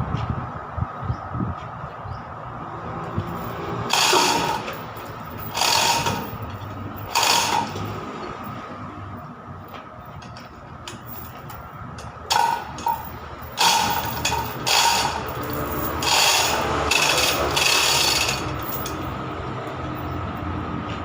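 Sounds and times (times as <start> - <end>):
steady background hum: 0.0 - 21.0
loud tool bursts: 3.9 - 4.8, 5.4 - 8.0, 12.3 - 19.0.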